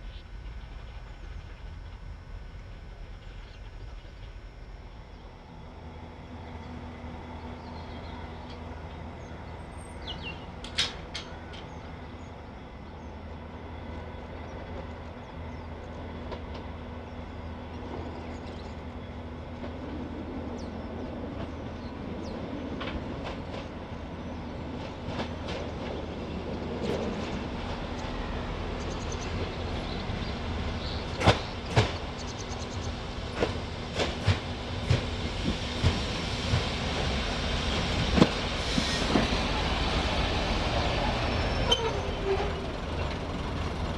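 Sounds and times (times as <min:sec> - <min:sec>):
train rumbling on track: 0:00.0 - 0:43.9
wheels clicking over rail joints: 0:10.4 - 0:12.0.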